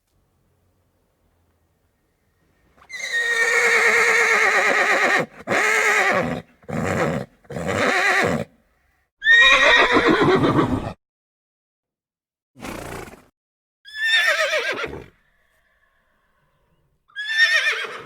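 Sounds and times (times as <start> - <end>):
horse whinnying: 2.8 - 8.5, 9.2 - 11.0, 13.9 - 15.8, 17.1 - 18.0.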